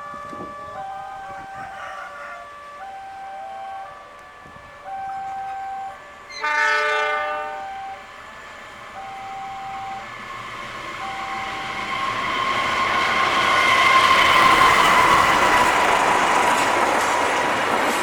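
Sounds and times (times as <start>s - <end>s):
locomotive horn: 0.0s - 8.1s
level-crossing warning bell: 0.0s - 17.3s
train wheel and rail noise: 0.0s - 18.0s.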